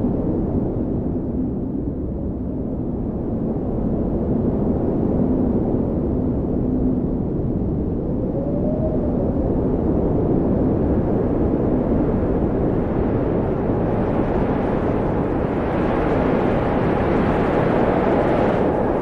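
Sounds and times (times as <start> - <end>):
wind blowing: 5.6 - 19.0.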